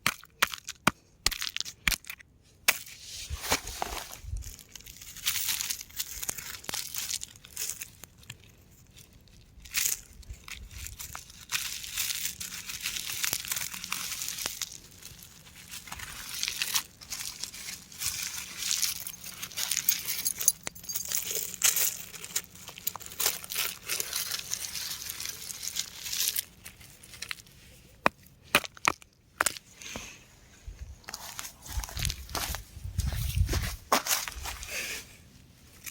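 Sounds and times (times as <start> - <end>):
rock crumbling and crunching: 0.0 - 29.7, 31.0 - 34.7.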